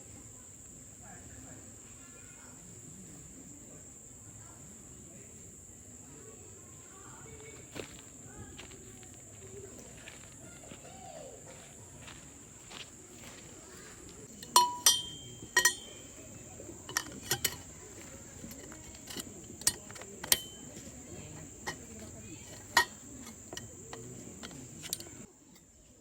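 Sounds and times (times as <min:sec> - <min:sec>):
metal and glass gear clinking: 0:14.3 - 0:16.2, 0:16.9 - 0:25.3.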